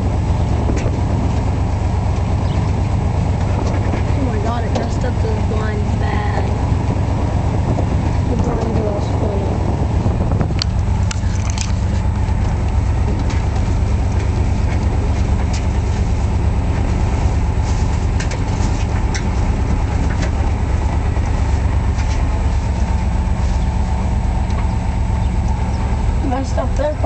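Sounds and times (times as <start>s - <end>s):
car driving slowly: 0.0s - 27.0s
light clicks and rattles: 10.5s - 16.0s.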